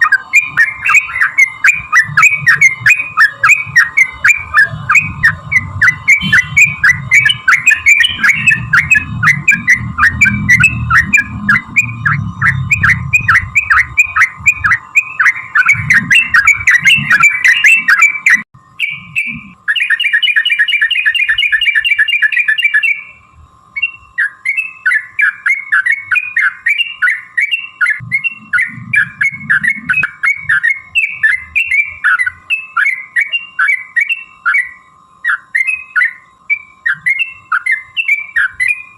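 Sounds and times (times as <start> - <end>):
bird rolling trill: 0.0 - 23.2, 23.8 - 38.9
bird chirping song: 0.0 - 38.9
low rumble: 3.6 - 17.4, 28.0 - 30.6.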